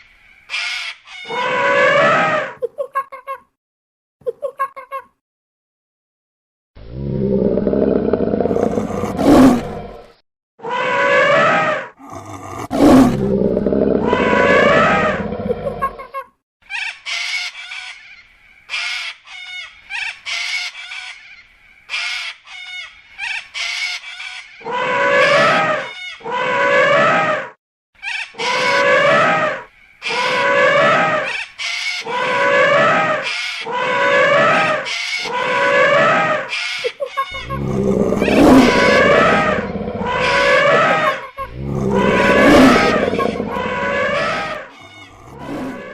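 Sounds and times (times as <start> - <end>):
repeated falling animal calls: 0.5 - 2.6, 6.9 - 16.1, 24.6 - 45.9
animal roaring: 6.8 - 10.2, 10.9 - 16.0, 37.4 - 45.9.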